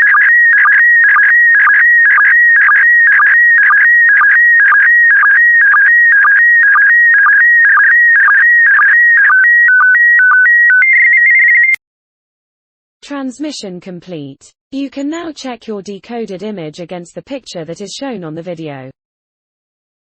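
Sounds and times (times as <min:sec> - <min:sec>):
warbling data signal tone: 0:00.0 - 0:11.8.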